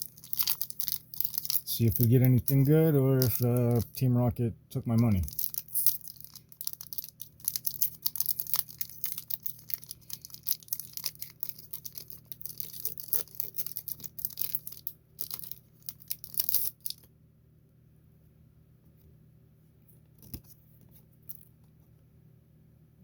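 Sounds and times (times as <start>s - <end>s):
foil wrapper crinkling and tearing: 0.0s - 3.9s, 5.0s - 17.1s.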